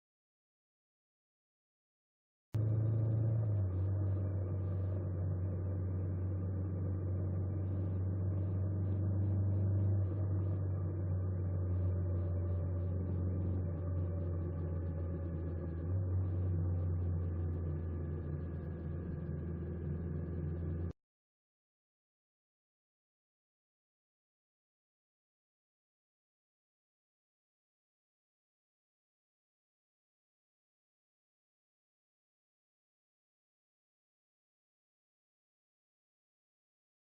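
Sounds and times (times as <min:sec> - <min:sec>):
engine humming steadily: 0:02.6 - 0:21.0.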